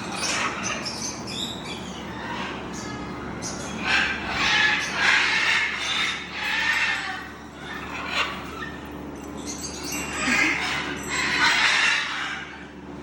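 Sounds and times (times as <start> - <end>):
parrots squawking and screeching: 0.0 - 12.8.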